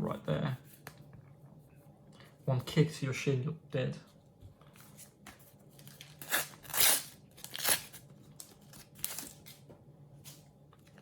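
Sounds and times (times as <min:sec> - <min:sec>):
packet tearing open: 0:05.9 - 0:09.6.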